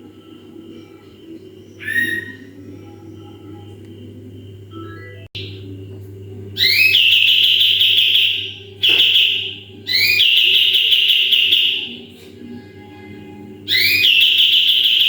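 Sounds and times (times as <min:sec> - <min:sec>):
songbird piercing whistles: 0:01.8 - 0:02.6, 0:06.6 - 0:11.9, 0:13.7 - 0:15.0.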